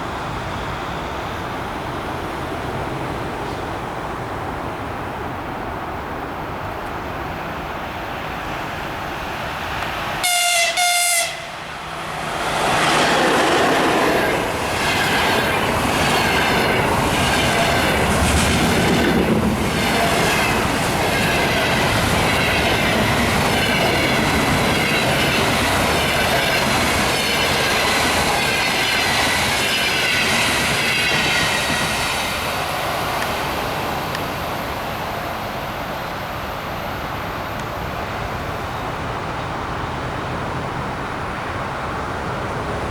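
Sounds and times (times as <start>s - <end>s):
locomotive horn blasts: 10.2s - 11.7s
train wheels clattering on rails: 11.8s - 34.4s.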